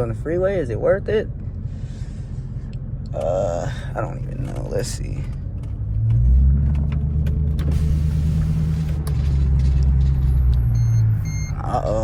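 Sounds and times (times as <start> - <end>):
car exhaust accelerating: 4.1 - 12.0.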